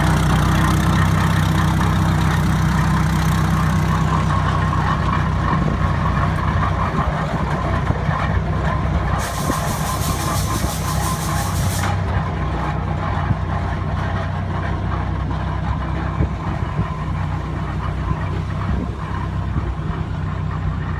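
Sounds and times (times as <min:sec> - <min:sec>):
old tractor engines running: 0:00.0 - 0:20.9
hiss: 0:09.2 - 0:12.0.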